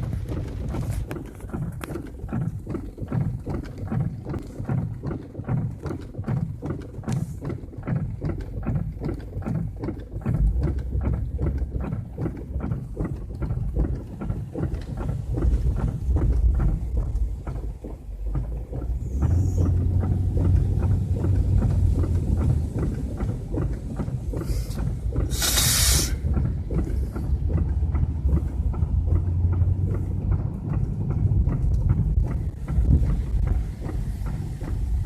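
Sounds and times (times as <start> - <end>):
floodwater churning and splashing: 0.0 - 35.0
wind buffeting microphone: 26.2 - 35.0.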